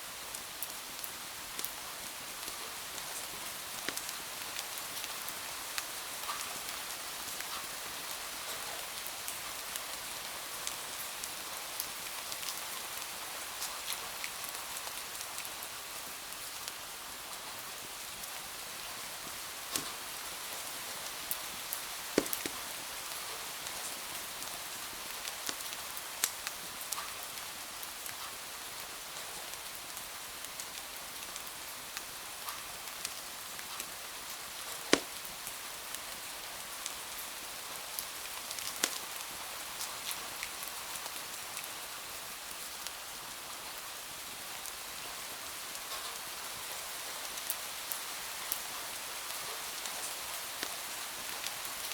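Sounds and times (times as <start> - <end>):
steady rain: 0.0 - 51.9
wood fire crackling and popping: 3.0 - 4.2, 19.7 - 20.2, 21.1 - 24.0, 34.7 - 35.4, 38.4 - 39.3, 50.6 - 50.8.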